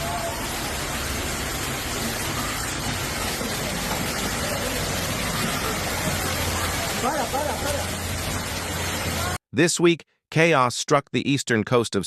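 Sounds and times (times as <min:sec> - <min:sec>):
hail and rain falling: 0:00.0 - 0:09.4.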